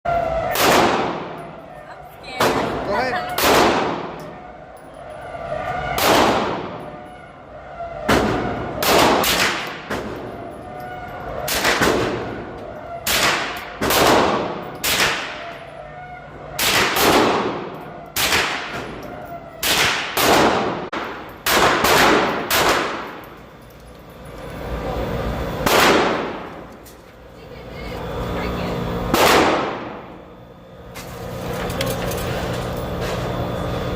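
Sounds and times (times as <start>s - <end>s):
rifle shots with echo: 0.5s - 1.4s, 3.4s - 4.2s, 8.2s - 10.1s, 16.6s - 18.8s, 19.6s - 23.2s, 25.6s - 26.5s, 29.1s - 30.0s.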